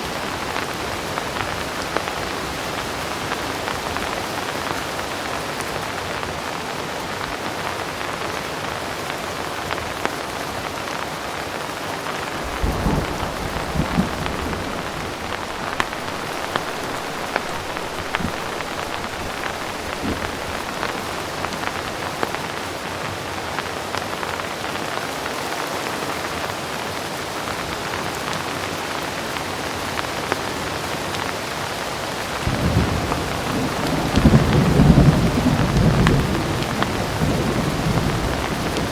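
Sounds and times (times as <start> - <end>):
heavy rain: 0.0 - 38.9
distant thunder rumble: 12.2 - 22.5, 32.4 - 38.9.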